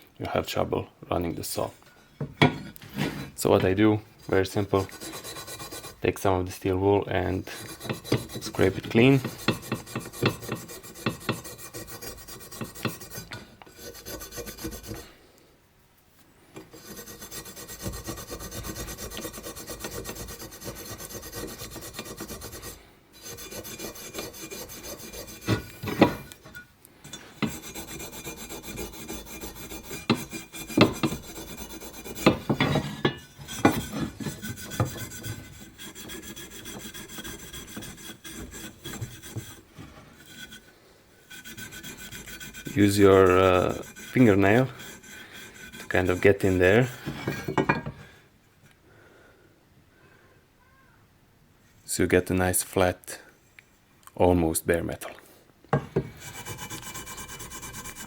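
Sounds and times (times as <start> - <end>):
steel wool scrubbing metal: 3.0 - 6.3, 7.2 - 15.1, 16.6 - 47.8, 55.8 - 58.0.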